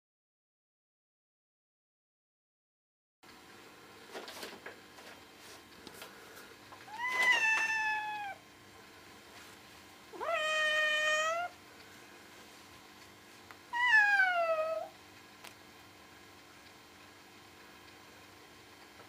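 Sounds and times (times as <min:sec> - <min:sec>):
cat meowing: 0:06.9 - 0:08.4, 0:10.1 - 0:11.6, 0:13.7 - 0:15.0.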